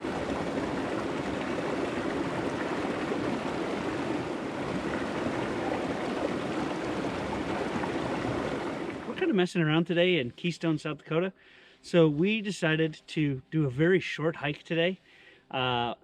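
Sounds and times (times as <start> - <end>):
creek water flowing: 0.0 - 10.8.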